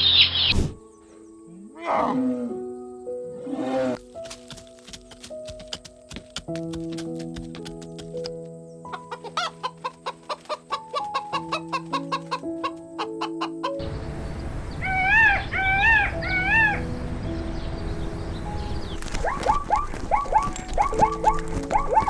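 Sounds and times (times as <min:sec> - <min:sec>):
background music: 0:00.0 - 0:22.0
poultry calling: 0:08.9 - 0:20.9
outdoor background noise: 0:13.8 - 0:22.0.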